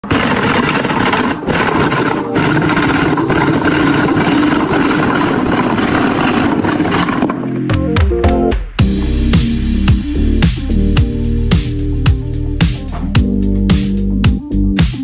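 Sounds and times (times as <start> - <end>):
power woodworking tool running: 0.0 - 7.5.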